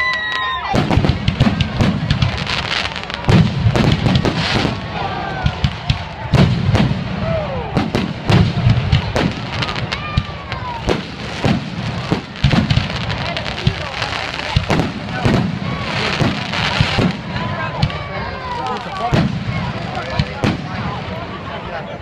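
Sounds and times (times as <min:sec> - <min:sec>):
firework bangs and crackles: 0:00.0 - 0:22.0
deep firework thumps: 0:00.8 - 0:02.5, 0:03.2 - 0:04.8, 0:07.8 - 0:13.9.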